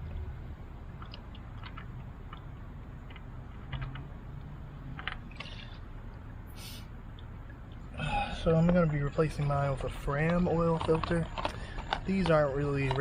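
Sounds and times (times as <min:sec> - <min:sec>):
low steady background noise: 0:00.0 - 0:13.0
short hiss: 0:06.5 - 0:06.9
oil filter clicking and tapping: 0:07.1 - 0:13.0.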